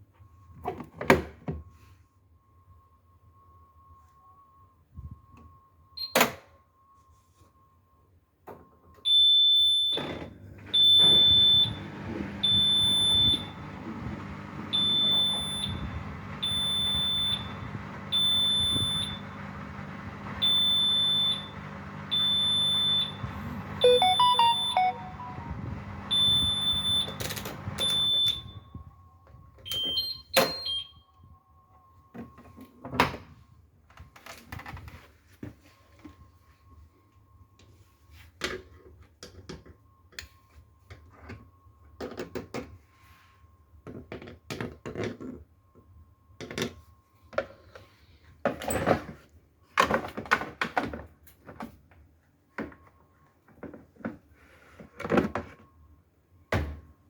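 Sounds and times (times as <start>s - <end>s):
washing machine beeping: 4.7s - 6.4s, 8.8s - 28.9s, 29.6s - 31.2s
low motor hum: 10.4s - 28.5s
stepped electronic tones: 22.9s - 27.2s.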